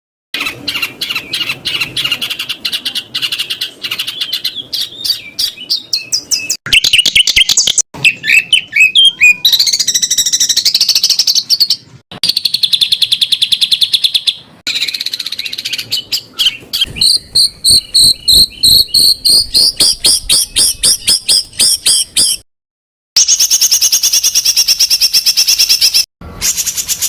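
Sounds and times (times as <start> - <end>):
fast even bird trill: 0.4 - 22.4, 23.2 - 27.0
songbird rapid-fire calls: 6.7 - 22.4.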